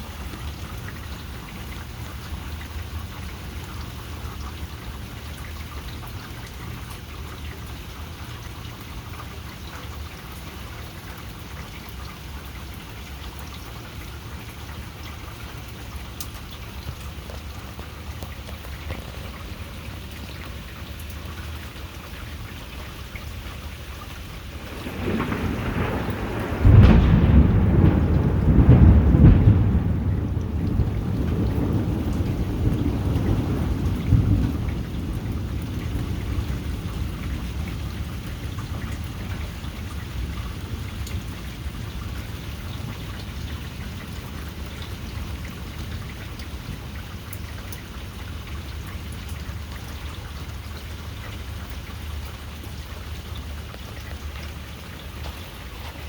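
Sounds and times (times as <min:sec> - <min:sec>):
heavy rain: 0:00.0 - 0:56.0
thunder rumbling: 0:24.2 - 0:50.9.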